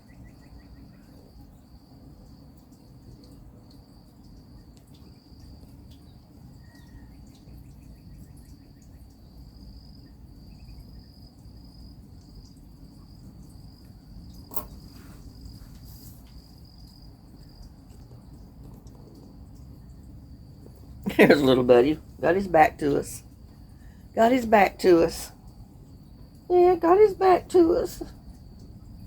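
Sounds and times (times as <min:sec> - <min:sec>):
insects trilling: 0:00.0 - 0:29.0
sharp click: 0:14.5 - 0:14.8.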